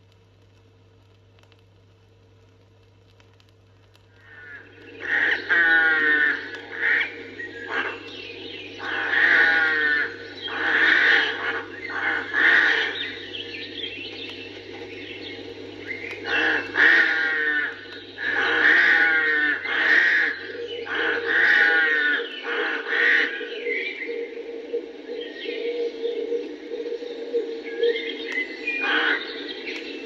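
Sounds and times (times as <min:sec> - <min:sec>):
faint low hum: 0:00.0 - 0:30.0
rooks cawing: 0:04.2 - 0:23.8, 0:28.7 - 0:30.0
other birds: 0:04.2 - 0:24.3, 0:25.1 - 0:30.0.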